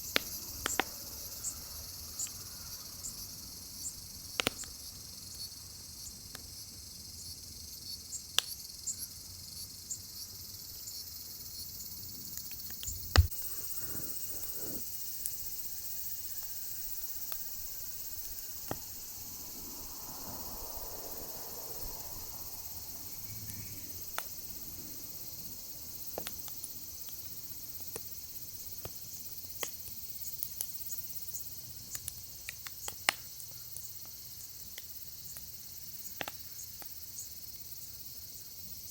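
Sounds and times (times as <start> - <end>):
firewood crackling and popping: 0.0 - 2.4, 4.2 - 4.9, 12.2 - 19.7, 23.0 - 37.0
high-pitched insect chorus: 0.0 - 38.9.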